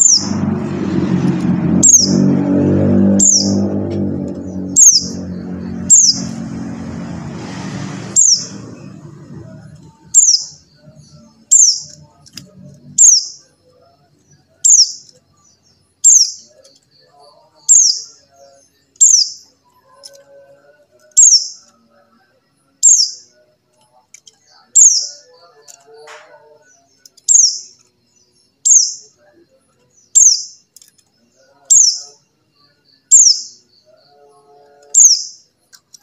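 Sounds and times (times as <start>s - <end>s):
low humming: 0.0s - 15.4s
bird chirp sliding downward: 0.0s - 20.4s, 21.0s - 21.8s, 22.8s - 23.3s, 24.4s - 27.8s, 30.0s - 30.7s, 31.6s - 32.2s, 33.0s - 34.2s, 34.8s - 36.0s.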